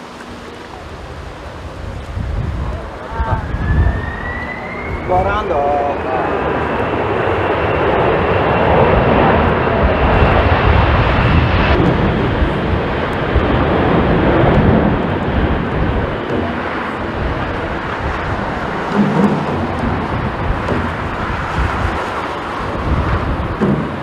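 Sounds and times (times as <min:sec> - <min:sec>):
jet engines rushing: 0:00.0 - 0:24.0
thin high whine: 0:03.0 - 0:07.0.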